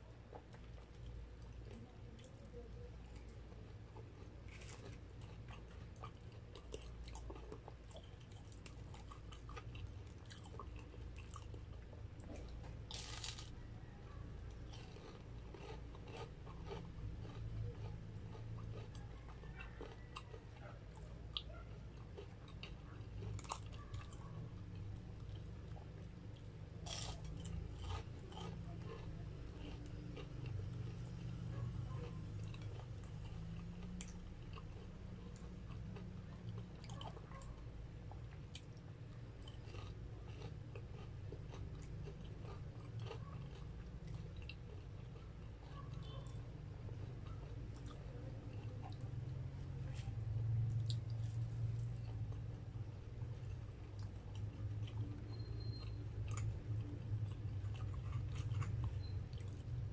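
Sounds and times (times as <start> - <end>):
chewing and crunching fried food: 0.0 - 59.9.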